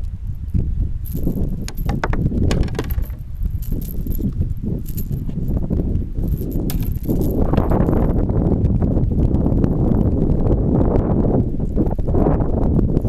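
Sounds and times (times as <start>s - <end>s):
wind buffeting microphone: 0.0s - 13.0s
clicks and rattles of gear: 1.0s - 8.3s.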